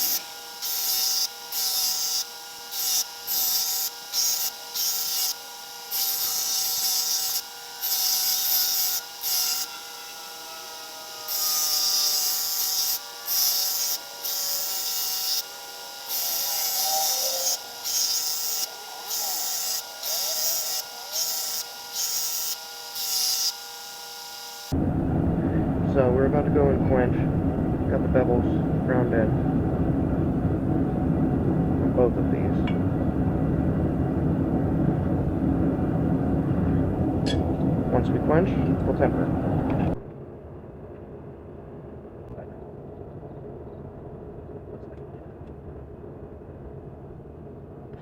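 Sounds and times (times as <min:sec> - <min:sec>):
blade grinding on grinder: 0:00.0 - 0:24.8
electric grinder running: 0:00.0 - 0:24.9.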